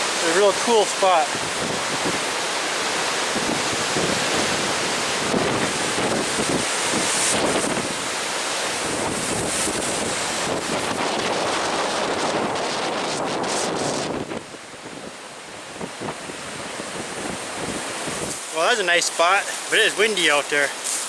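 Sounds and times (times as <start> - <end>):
waves breaking: 0.0 - 21.0
wind buffeting microphone: 1.3 - 18.4.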